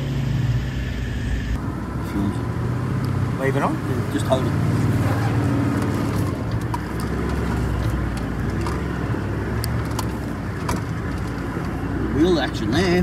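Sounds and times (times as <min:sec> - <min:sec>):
knocks and rattles: 0:05.7 - 0:09.0, 0:09.6 - 0:11.8.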